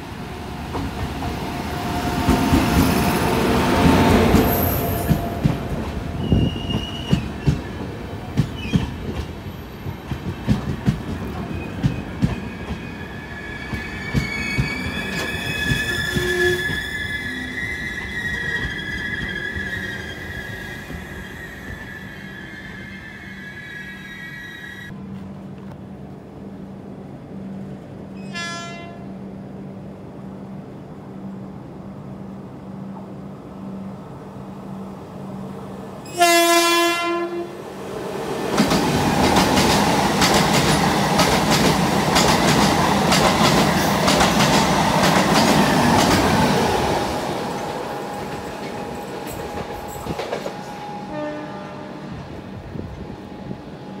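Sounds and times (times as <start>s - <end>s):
train passing at speed: 0.0s - 54.0s
locomotive horn: 28.2s - 29.1s, 36.0s - 37.6s, 51.0s - 52.2s.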